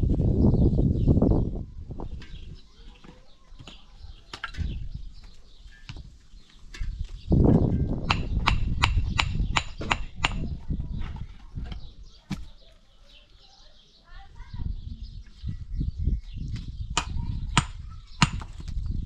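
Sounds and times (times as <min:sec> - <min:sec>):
sharp knocks: 0:08.1 - 0:10.5.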